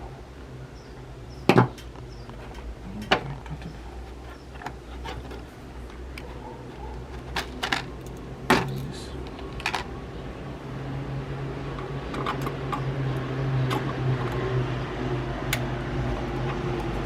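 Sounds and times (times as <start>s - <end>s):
steady low hum: 0.0s - 17.0s
hard plastic clicking and clattering: 1.5s - 9.9s.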